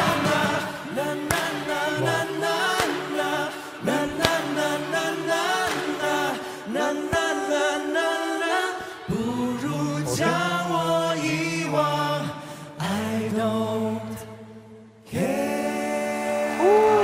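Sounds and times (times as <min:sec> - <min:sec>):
men singing in harmony: 0:00.0 - 0:14.4, 0:15.1 - 0:17.0.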